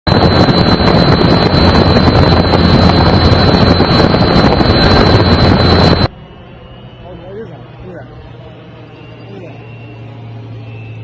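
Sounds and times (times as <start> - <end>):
helicopter engine and rotor: 0.1 - 6.1.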